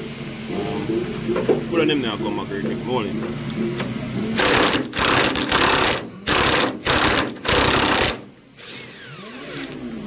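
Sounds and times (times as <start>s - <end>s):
power tool chipping: 4.4s - 9.5s.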